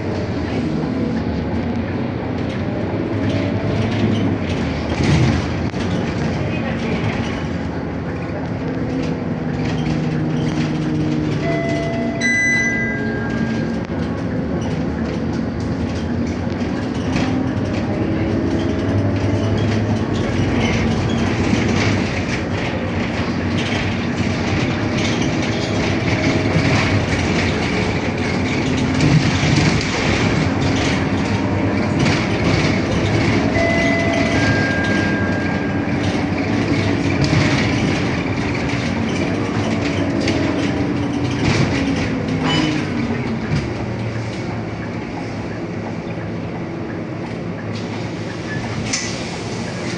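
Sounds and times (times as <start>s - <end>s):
bus engine and road noise: 0.0s - 49.9s
short electronic chime: 11.5s - 13.7s.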